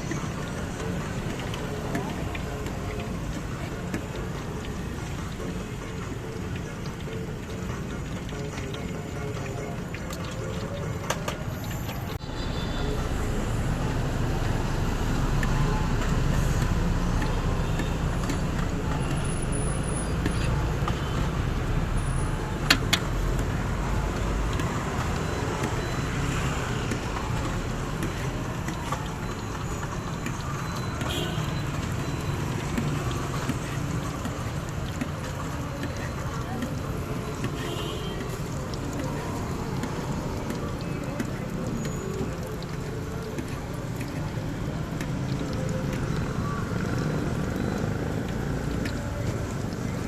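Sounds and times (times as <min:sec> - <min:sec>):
road traffic rumble: 0:00.0 - 0:50.0.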